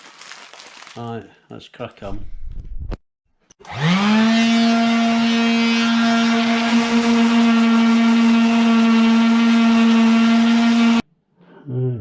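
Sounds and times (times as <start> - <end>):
electric sander whining: 3.6 - 11.0.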